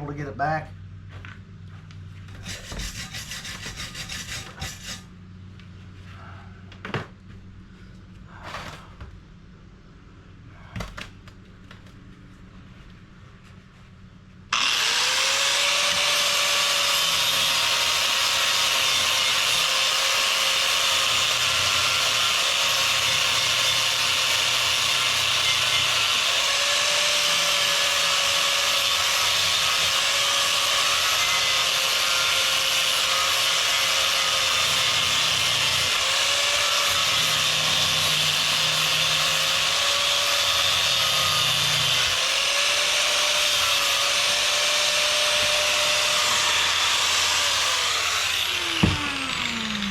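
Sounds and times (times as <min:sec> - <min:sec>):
angle grinder grinding metal: 0:02.3 - 0:05.1, 0:14.6 - 0:49.9.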